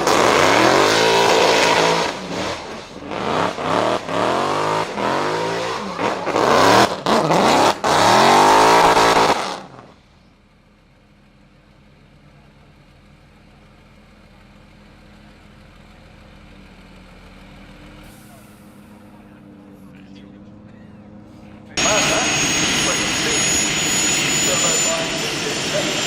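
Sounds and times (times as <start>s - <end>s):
car engine revving hard: 0.0s - 10.0s, 21.8s - 26.0s
faint engine hum: 9.6s - 26.0s.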